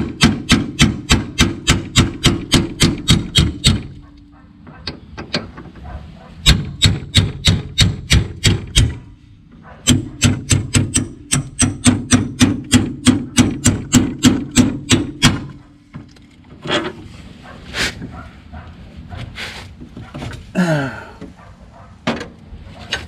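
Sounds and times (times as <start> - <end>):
hammer banging on metal bolt: 0.0 - 5.8, 6.4 - 9.1, 9.8 - 15.6.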